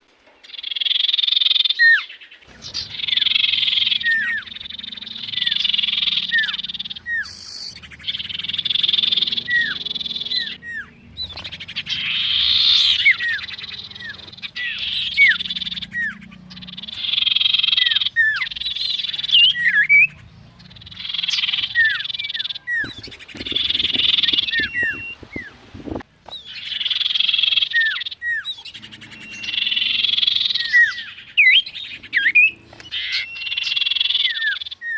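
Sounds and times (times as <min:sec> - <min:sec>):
low rumble: 0:02.5 - 0:26.2
bird rattling chatter and whistles: 0:20.8 - 0:34.9
crackling knocks: 0:22.8 - 0:26.4.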